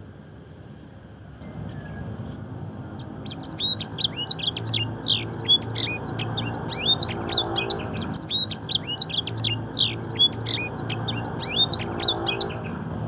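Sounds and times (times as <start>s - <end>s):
low steady hum: 0.0s - 13.0s
canary singing: 2.8s - 12.8s.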